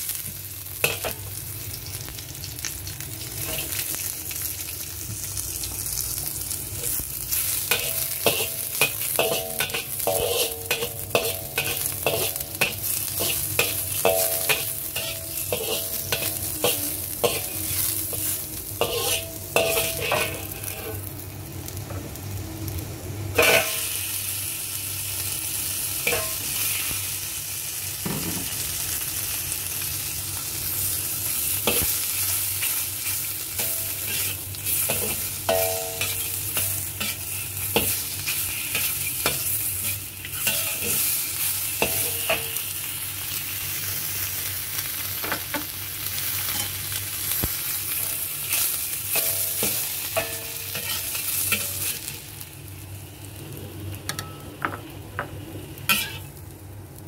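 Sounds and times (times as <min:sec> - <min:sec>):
food sizzling in hot oil: 0:00.0 - 0:57.0
metal spatula scraping wok: 0:00.8 - 0:01.2, 0:03.3 - 0:03.9, 0:06.8 - 0:21.1, 0:23.4 - 0:24.0, 0:31.6 - 0:42.7, 0:47.9 - 0:52.2, 0:55.8 - 0:56.4.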